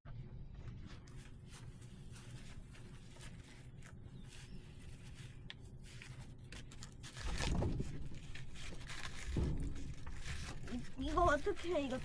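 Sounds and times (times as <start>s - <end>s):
rustling rumbling noise: 0.2s - 12.0s
logs knocking and scraping: 7.3s - 12.0s.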